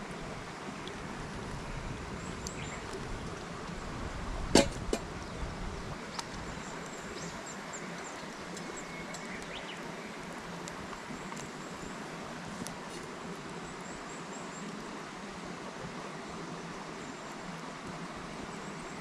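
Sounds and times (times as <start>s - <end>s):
steady background hiss: 0.0s - 19.0s
faint ticks: 6.1s - 11.6s.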